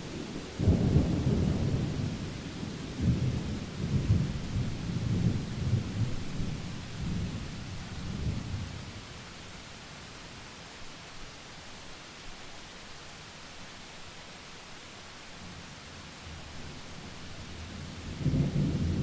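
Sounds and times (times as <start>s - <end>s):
rain hissing: 0.0s - 19.0s
thunder rumbling: 3.0s - 8.8s, 17.7s - 19.0s.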